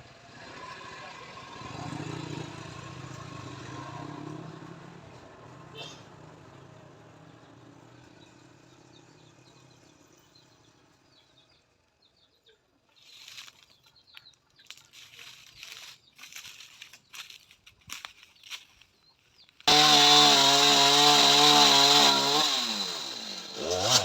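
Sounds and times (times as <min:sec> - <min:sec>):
rustling and crackling: 0:12.9 - 0:19.6
small engine humming: 0:19.7 - 0:24.0.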